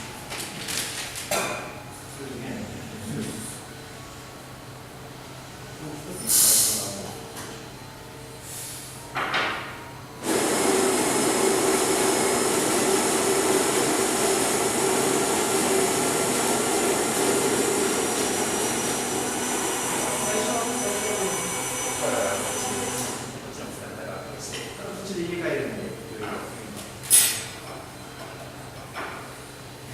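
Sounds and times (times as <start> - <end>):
electric coffee grinder: 10.2 - 23.2.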